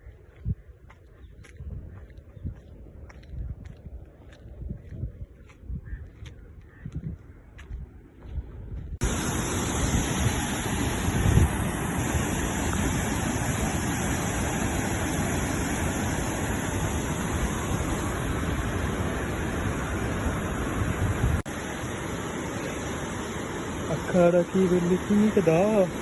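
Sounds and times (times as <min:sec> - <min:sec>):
loud rush of water: 0:09.0 - 0:26.0.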